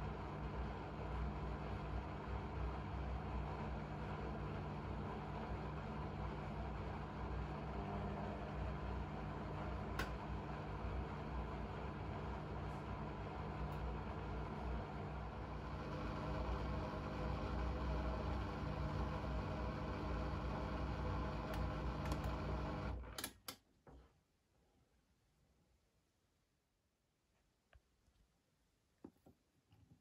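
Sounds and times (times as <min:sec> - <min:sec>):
washing machine motor hum: 0:00.0 - 0:23.3.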